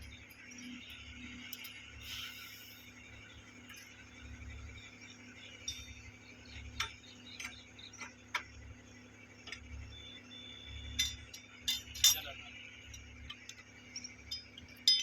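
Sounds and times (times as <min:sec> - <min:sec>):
steady background noise: 0:00.0 - 0:15.0
metallic clinks of hand tools: 0:10.9 - 0:15.0.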